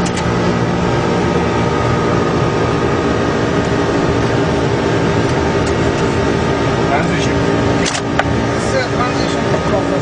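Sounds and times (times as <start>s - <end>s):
hum of constant tones: 0.0s - 10.0s.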